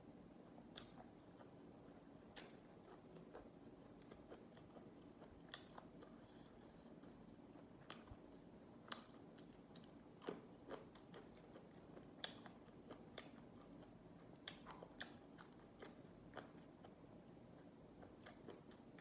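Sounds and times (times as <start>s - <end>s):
low steady hiss: 0.0s - 19.0s
person chewing crunchy vegetables: 0.6s - 19.0s.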